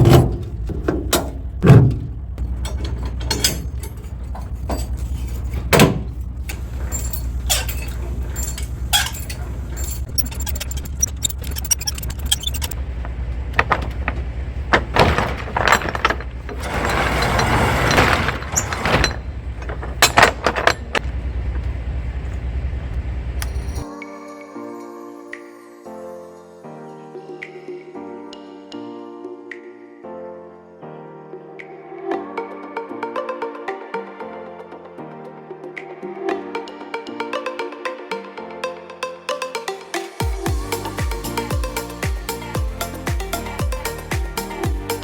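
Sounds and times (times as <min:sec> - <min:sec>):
clicks knocks and rattles: 0:00.0 - 0:22.4
truck diesel engine idling: 0:00.4 - 0:10.1, 0:12.7 - 0:16.6.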